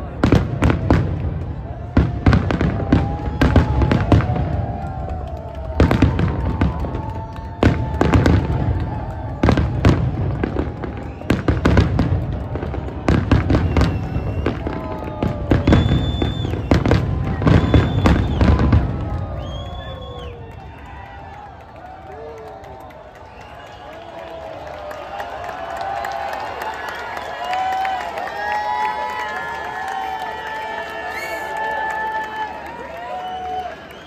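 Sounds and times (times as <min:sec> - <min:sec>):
fireworks bangs: 0:00.0 - 0:23.4.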